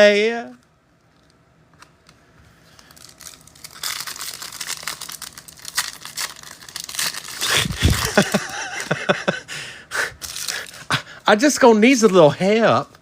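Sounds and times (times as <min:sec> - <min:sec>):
wrapper handling: 0:01.0 - 0:08.5, 0:10.2 - 0:10.9
foil wrapper tearing and crinkling: 0:02.7 - 0:08.5, 0:10.2 - 0:11.0.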